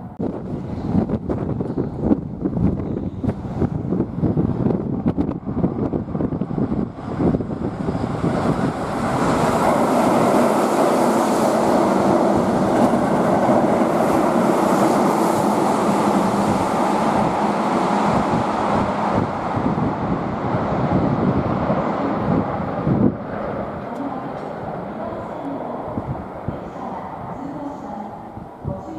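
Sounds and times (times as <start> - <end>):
electric train wheels on rails: 0.0 - 28.9.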